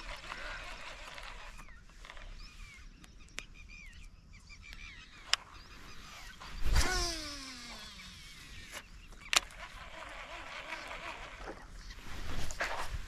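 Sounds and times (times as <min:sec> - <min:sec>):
wild birds chirping: 0:00.0 - 0:12.9.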